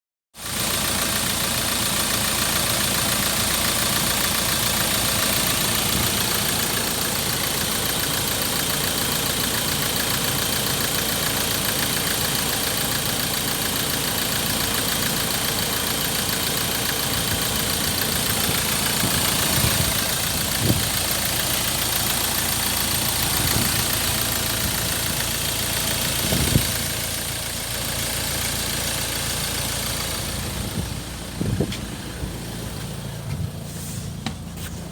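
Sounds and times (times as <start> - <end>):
diesel engine idling: 0.4 - 34.9
engine knocks: 15.8 - 34.9.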